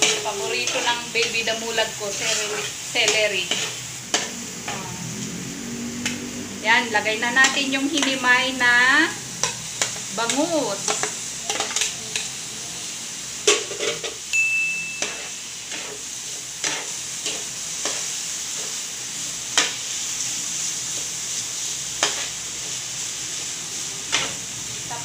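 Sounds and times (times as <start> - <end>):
spoon scraping a pan: 0.0 - 5.0, 7.2 - 8.3, 9.4 - 12.4, 13.4 - 14.2, 15.0 - 18.8, 19.5 - 21.2, 21.8 - 22.8, 24.0 - 24.4
food sizzling in a frying pan: 0.0 - 25.0.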